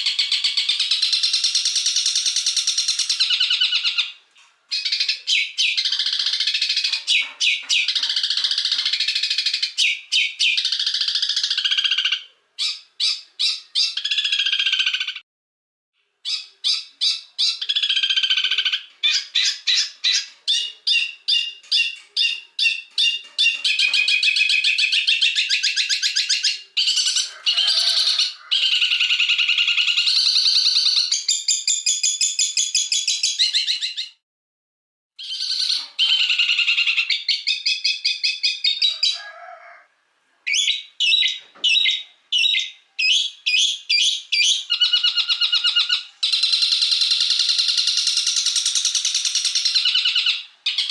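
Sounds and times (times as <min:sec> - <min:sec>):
songbird chirps and trills: 0:00.0 - 0:15.2, 0:16.2 - 0:34.2, 0:35.2 - 0:39.2.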